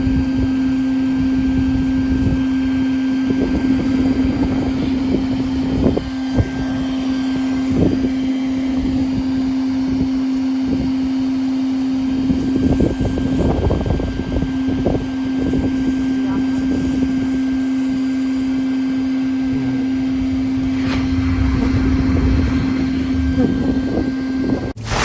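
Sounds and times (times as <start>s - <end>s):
wind: 0.0s - 25.0s.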